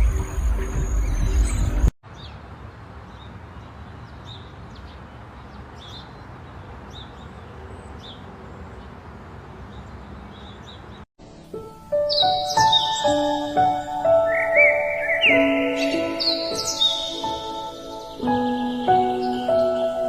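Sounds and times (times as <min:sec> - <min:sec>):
bird chirping: 0:00.0 - 0:02.4, 0:09.6 - 0:11.0, 0:12.0 - 0:20.0
outdoor background hiss: 0:11.2 - 0:20.0.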